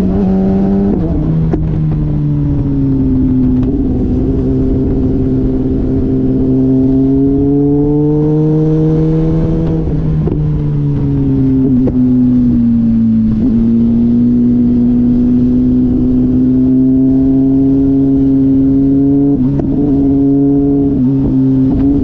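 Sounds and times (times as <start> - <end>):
motorcycle engine: 0.0 - 22.0.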